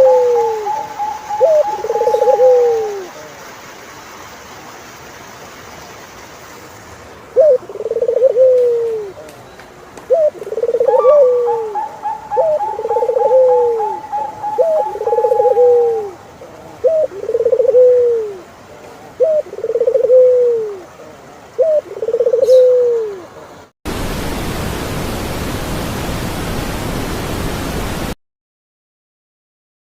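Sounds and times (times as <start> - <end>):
bird trilling: 0.0 - 3.1, 10.1 - 16.2, 21.6 - 23.1
dove cooing: 0.0 - 3.3, 7.4 - 9.3, 10.1 - 23.5
steady hiss: 0.0 - 11.7, 12.3 - 28.2.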